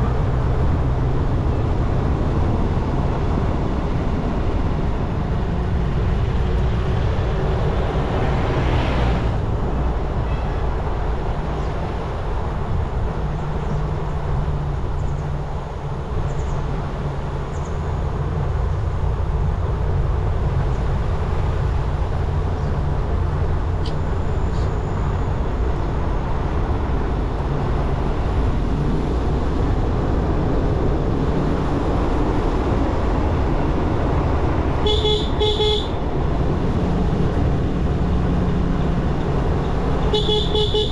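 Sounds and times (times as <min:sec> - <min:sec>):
wind and road noise: 0:00.0 - 0:40.9
vehicle horn beeps: 0:34.8 - 0:36.0, 0:40.0 - 0:40.9.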